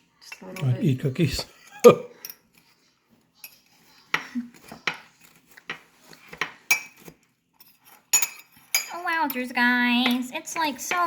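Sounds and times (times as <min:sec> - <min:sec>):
fork clinking against ceramic mug: 0:06.7 - 0:09.4.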